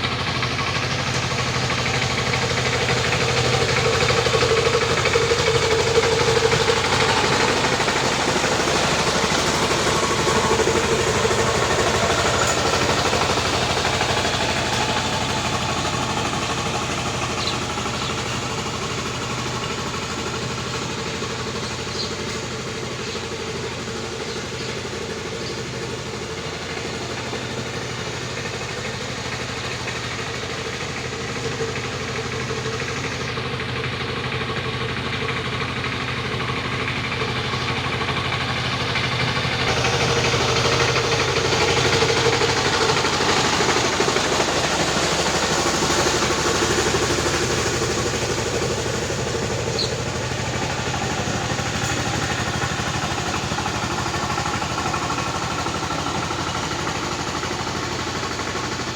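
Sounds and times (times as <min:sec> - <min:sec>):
tractor engine running: 0:00.0 - 0:58.9.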